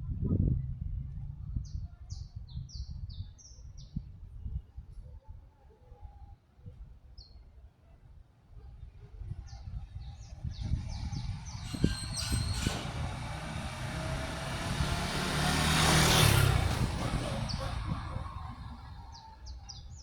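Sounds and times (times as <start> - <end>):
vehicle passing: 9.9 - 19.8.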